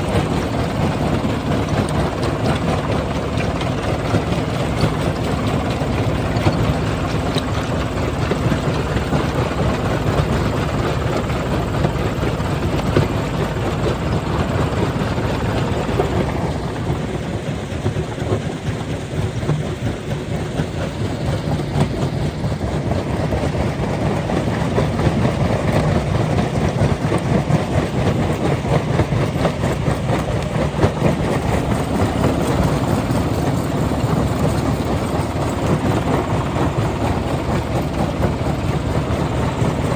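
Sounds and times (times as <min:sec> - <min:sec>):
rock crusher machine drone: 0:25.2 - 0:39.9.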